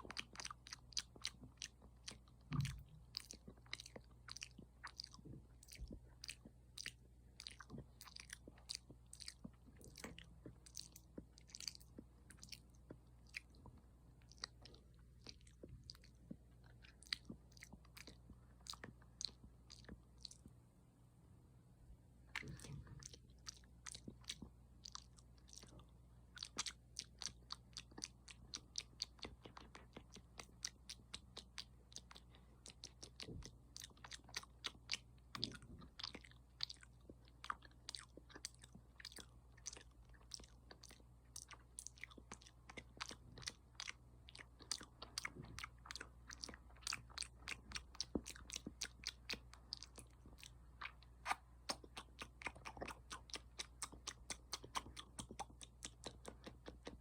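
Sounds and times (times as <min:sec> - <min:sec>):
faint low hum: 0:00.0 - 0:57.0
wet mouth clicks and smacks: 0:26.4 - 0:57.0.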